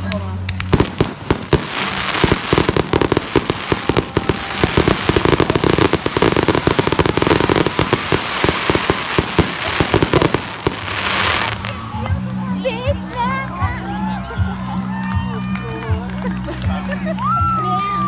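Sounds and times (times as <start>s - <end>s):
fireworks crackling and banging: 0.2s - 12.0s.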